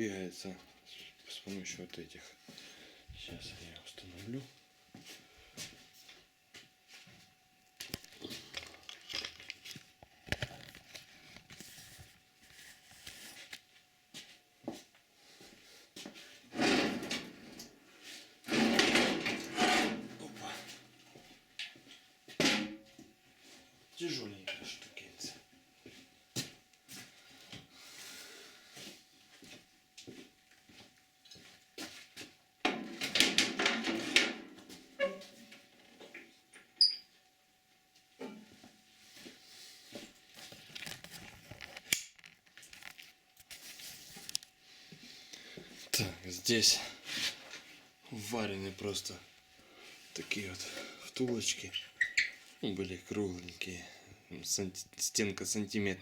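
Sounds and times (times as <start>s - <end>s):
fence sliding and scraping: 16.5s - 17.6s, 18.5s - 20.2s.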